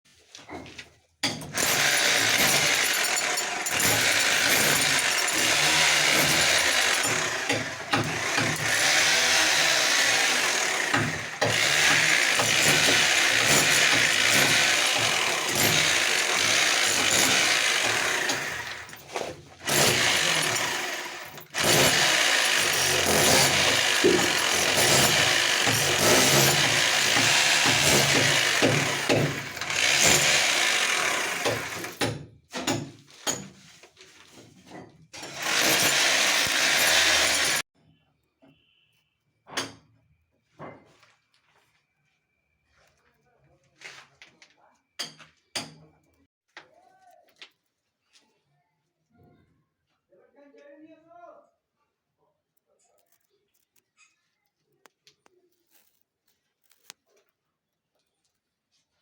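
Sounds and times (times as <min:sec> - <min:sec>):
power tool running: 0:01.5 - 0:32.0, 0:35.2 - 0:37.7.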